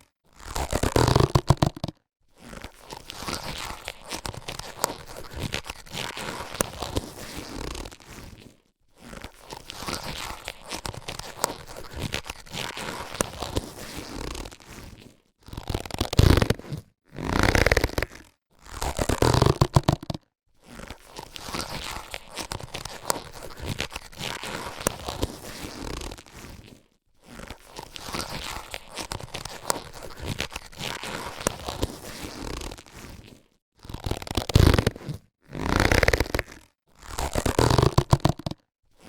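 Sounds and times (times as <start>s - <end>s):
latex gloves rubbing and crinkling: 0.0s - 39.0s.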